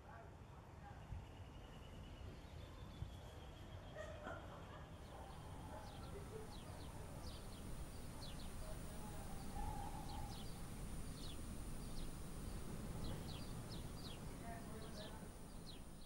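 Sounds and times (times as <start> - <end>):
small birds chirping: 5.0 - 16.0
low steady rumble: 5.1 - 16.0.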